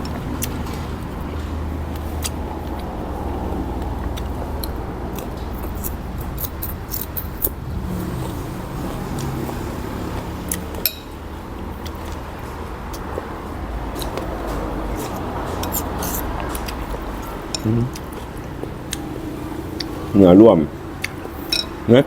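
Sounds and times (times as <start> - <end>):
steady low hum: 0.0 - 21.9
spoon and chopsticks clicking on bowl: 21.0 - 21.8.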